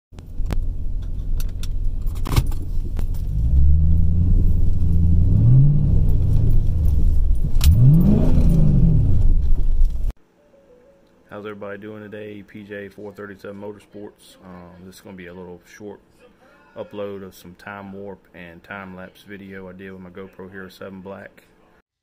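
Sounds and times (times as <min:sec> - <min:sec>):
car engine revving: 0:03.0 - 0:10.1.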